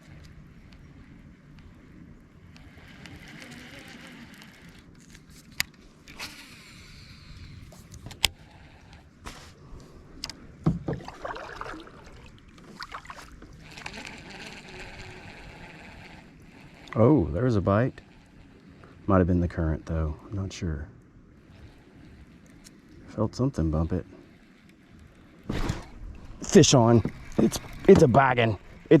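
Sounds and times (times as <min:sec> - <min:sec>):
water sloshing along hull: 0:00.0 - 0:19.6, 0:21.0 - 0:23.2, 0:24.0 - 0:29.0
gear knocking against boat: 0:26.7 - 0:29.0.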